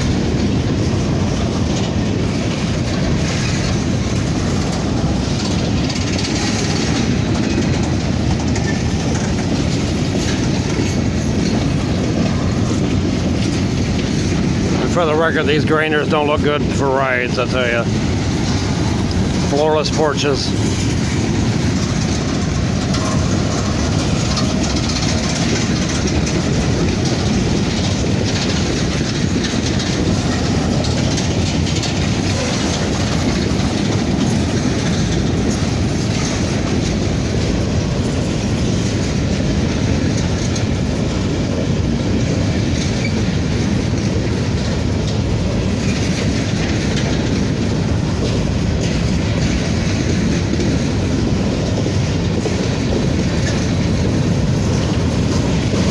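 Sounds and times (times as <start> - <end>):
freight train rumble: 0.0 - 55.9
wheels clacking over rail joints: 0.0 - 55.9.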